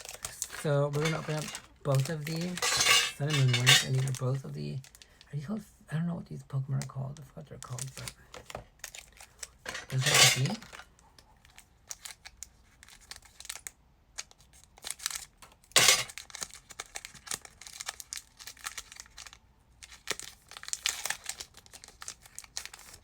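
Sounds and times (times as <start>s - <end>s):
foil wrapper ripping: 0.0s - 2.6s, 11.5s - 23.0s
foil wrapper crinkling: 0.0s - 5.2s, 7.5s - 23.0s.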